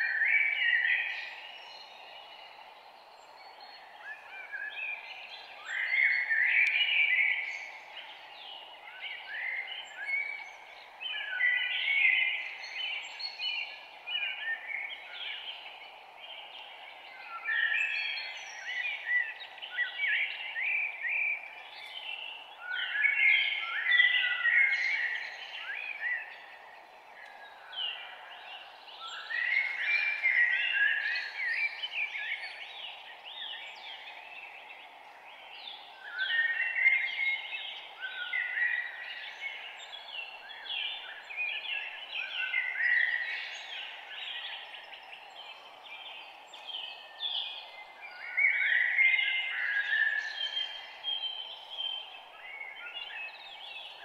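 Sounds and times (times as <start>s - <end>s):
songbird chirping: 0.0s - 54.0s
steady background hiss: 0.0s - 54.0s.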